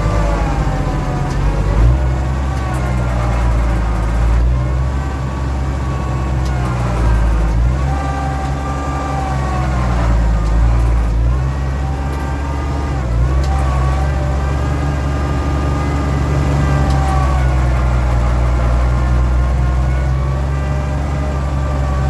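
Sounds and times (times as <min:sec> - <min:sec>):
hydraulic whine: 0:00.0 - 0:22.0
tractor engine running: 0:00.0 - 0:22.0.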